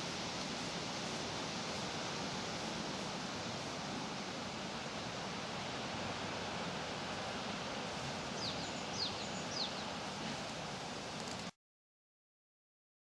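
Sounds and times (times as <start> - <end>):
leaves rustling: 0.0 - 11.6
small bird chirping: 8.4 - 9.9.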